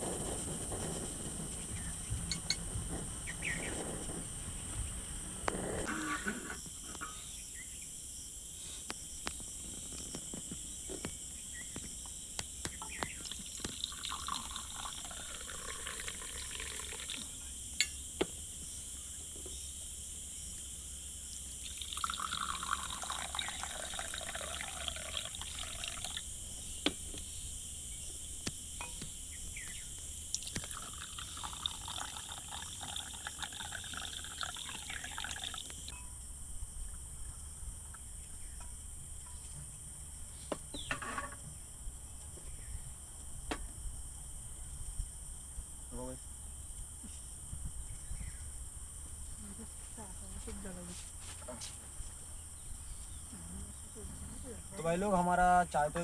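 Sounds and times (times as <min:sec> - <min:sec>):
water bubbling and trickling: 0:13.1 - 0:17.4, 0:21.6 - 0:26.3, 0:30.2 - 0:35.9.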